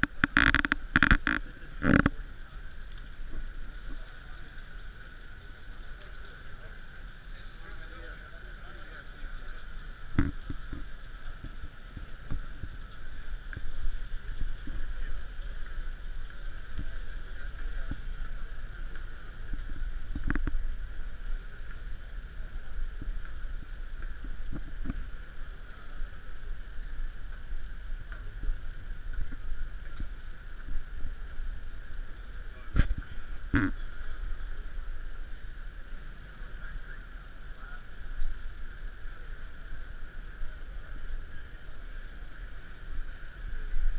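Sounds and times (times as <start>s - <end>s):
faint murmur: 0.0s - 43.9s.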